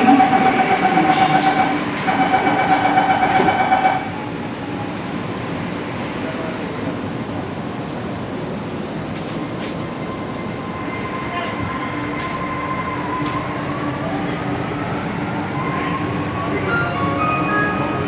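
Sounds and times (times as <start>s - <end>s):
train rumble and rail noise: 0.0s - 18.0s.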